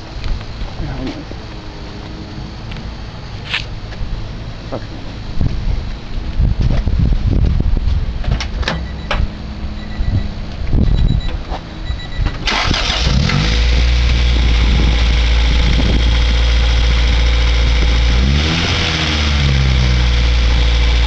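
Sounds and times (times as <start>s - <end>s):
engine cranking on starter: 12.4s - 14.4s.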